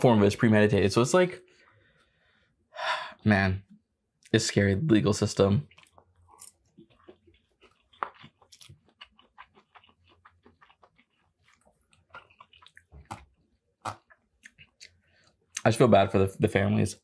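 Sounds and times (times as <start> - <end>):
wet chewing mouth sounds: 5.6 - 15.6.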